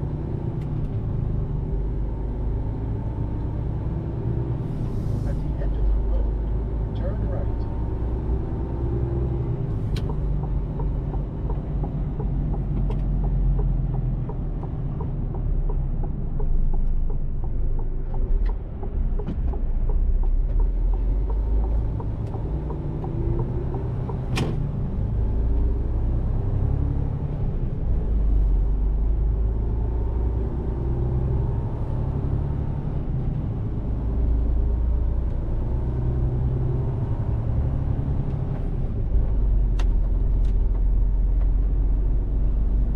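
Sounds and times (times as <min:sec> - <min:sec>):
road noise: 0:00.0 - 0:42.9
truck diesel engine rumble: 0:00.0 - 0:42.9.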